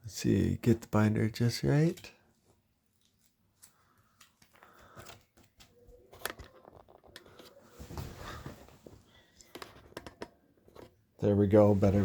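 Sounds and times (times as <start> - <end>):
soft rustling: 7.2 - 9.4.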